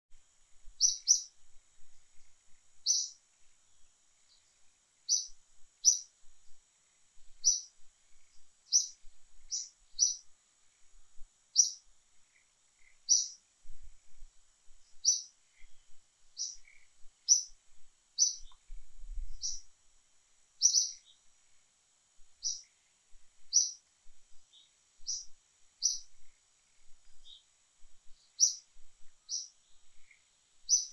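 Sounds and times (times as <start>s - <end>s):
faint high-pitched hiss: 0.0s - 30.9s
bird chirping: 0.8s - 1.4s, 2.1s - 6.6s, 7.3s - 10.3s, 11.5s - 13.8s, 14.8s - 17.6s, 18.2s - 19.7s, 20.6s - 21.3s, 22.4s - 22.8s, 23.4s - 30.9s.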